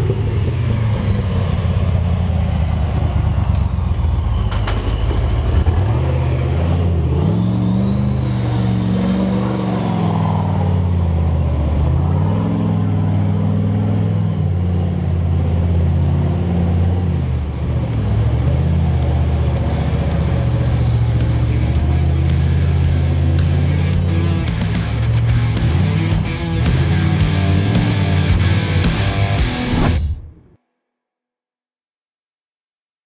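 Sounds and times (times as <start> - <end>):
off-road vehicle engine revving: 0.0 - 30.4.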